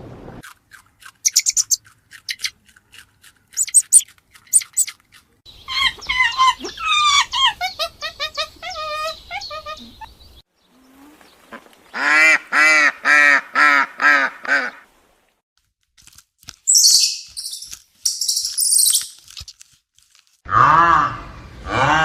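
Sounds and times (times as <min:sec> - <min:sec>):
high-pitched chirping: 0:01.2 - 0:02.5, 0:03.6 - 0:10.2, 0:16.7 - 0:19.2.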